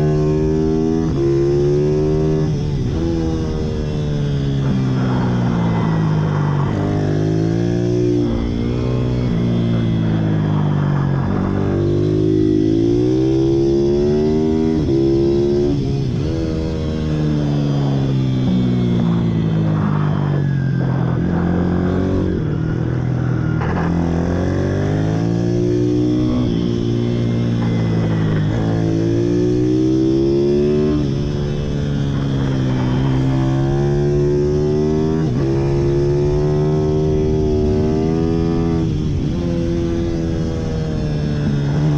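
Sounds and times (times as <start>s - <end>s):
pit bike engine accelerating: 0.0s - 41.9s
pit bike engine revving: 23.6s - 41.9s.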